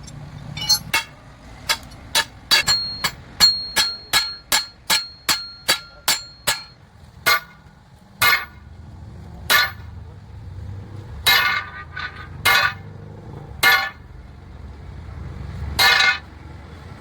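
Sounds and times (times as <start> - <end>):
hammer striking steel: 0.0 - 8.6, 9.5 - 10.0, 11.2 - 12.9, 13.6 - 14.0, 15.8 - 16.3.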